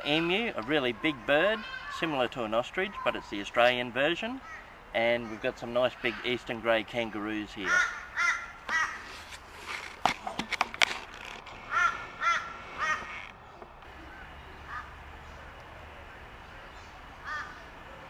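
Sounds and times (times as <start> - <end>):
bird calling: 4.3 - 6.4, 7.6 - 10.3, 11.2 - 15.6, 16.2 - 18.0.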